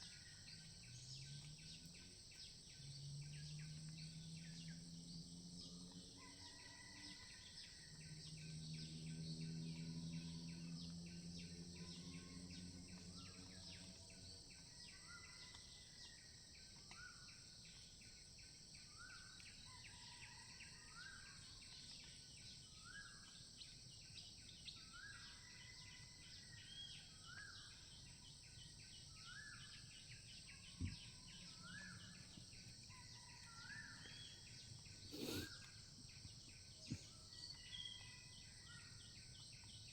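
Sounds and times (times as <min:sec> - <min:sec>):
insect chorus buzzing: 0:30.9 - 0:39.7.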